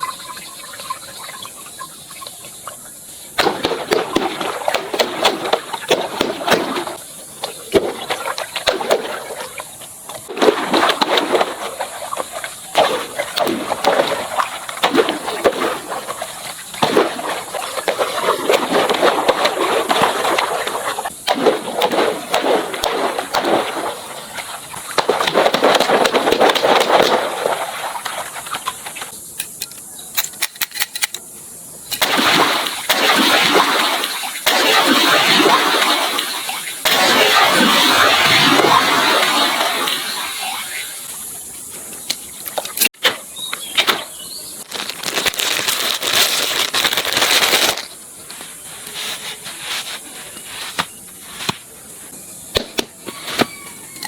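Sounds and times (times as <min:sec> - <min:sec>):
water gushing and splashing: 0:00.0 - 0:29.1, 0:32.0 - 0:41.5, 0:44.6 - 0:48.0
small sharp splats: 0:00.0 - 0:29.6, 0:31.9 - 0:51.8, 0:52.5 - 0:53.5.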